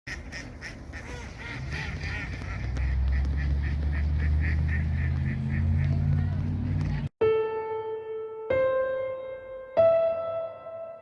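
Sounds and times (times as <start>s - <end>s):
geese honking in flight: 0.1s - 6.4s.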